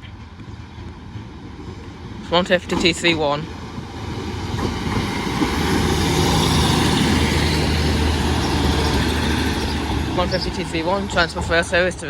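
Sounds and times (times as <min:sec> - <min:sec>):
train wheels on rails: 0:00.0 - 0:12.0
diesel engine drone: 0:02.6 - 0:12.0.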